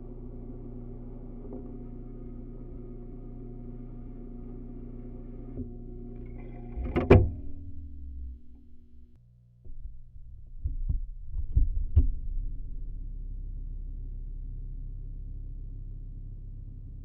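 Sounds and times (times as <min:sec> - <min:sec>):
tape deck motor hum: 0:00.0 - 0:09.2
clicks and knocks of tape transport: 0:05.6 - 0:08.8
tape deck mechanical clunk: 0:06.2 - 0:09.1.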